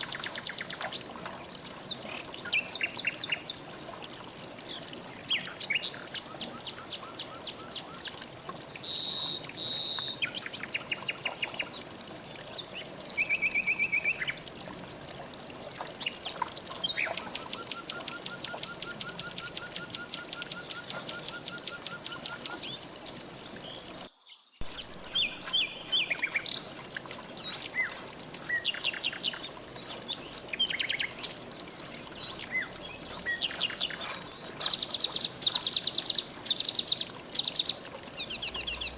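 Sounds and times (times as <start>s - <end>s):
songbirds singing: 0.0s - 3.6s, 4.6s - 8.2s, 8.8s - 14.6s, 15.9s - 38.9s
river water flowing: 0.0s - 38.9s.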